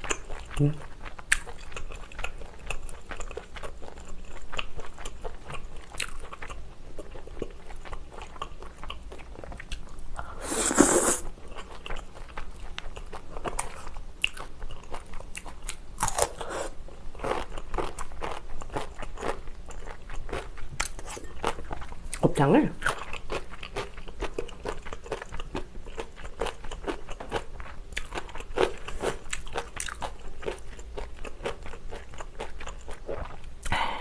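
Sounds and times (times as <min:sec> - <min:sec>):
close chewing with wet smacks: 0:00.0 - 0:10.0, 0:11.6 - 0:15.8, 0:22.8 - 0:33.7.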